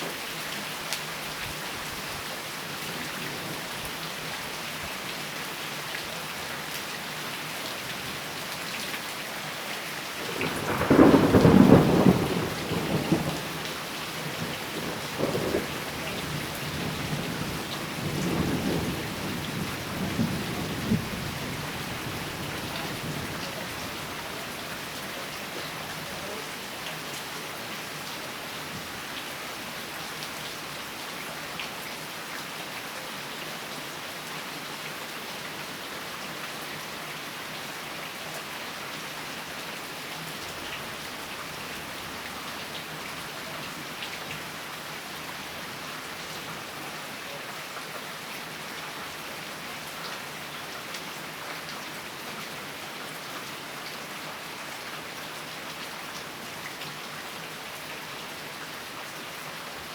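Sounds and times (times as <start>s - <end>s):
steady rain: 0.0s - 59.9s
thunder rumbling: 10.3s - 24.5s.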